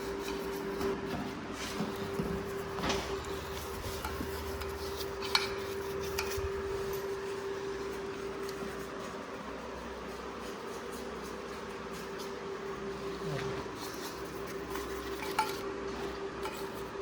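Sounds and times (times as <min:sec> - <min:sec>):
steady hum: 0:00.0 - 0:17.0
metallic clinks and rubbing: 0:02.5 - 0:08.4, 0:13.8 - 0:17.0.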